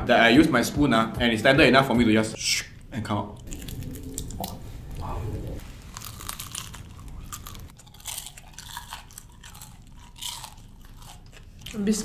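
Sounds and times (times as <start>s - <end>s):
crunching and chewing: 3.4s - 12.0s.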